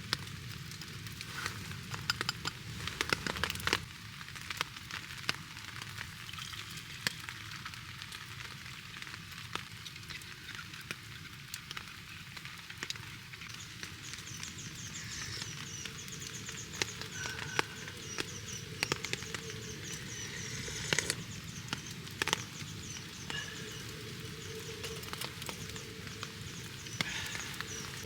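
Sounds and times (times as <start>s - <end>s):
campfire crackling: 0.0s - 28.0s
low rush of burning: 13.5s - 28.0s.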